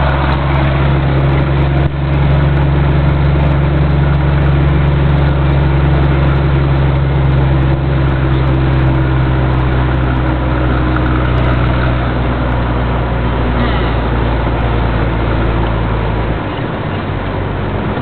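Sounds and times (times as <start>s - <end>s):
truck diesel engine running: 0.0s - 18.0s.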